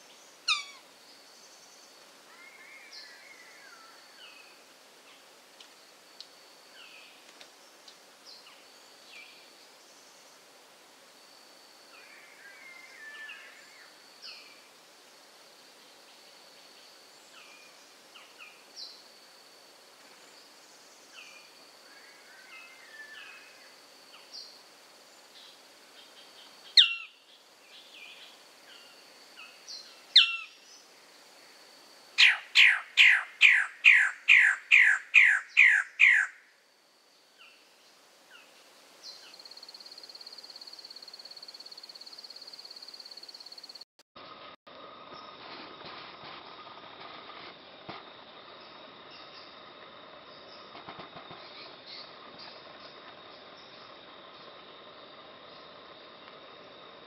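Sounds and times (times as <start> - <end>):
high insect drone: 0.0 - 57.0
bird calling sharp notes: 32.2 - 36.4.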